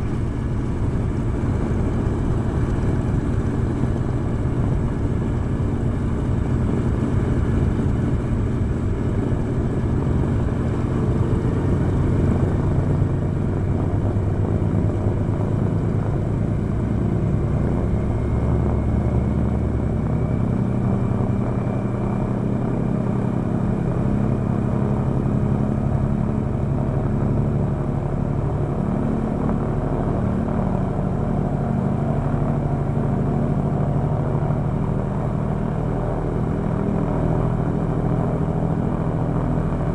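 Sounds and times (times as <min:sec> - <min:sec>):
radial engine running: 0:00.0 - 0:39.9.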